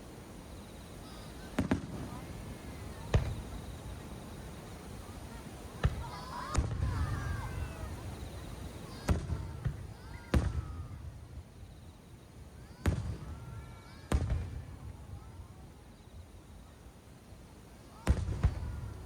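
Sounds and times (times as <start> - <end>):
fireworks shells booming: 1.5 - 4.6, 5.8 - 7.8, 18.0 - 19.0.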